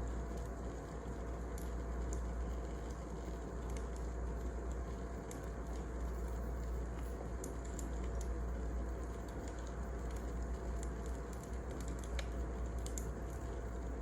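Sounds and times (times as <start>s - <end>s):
wood fire crackling: 6.8s - 14.0s.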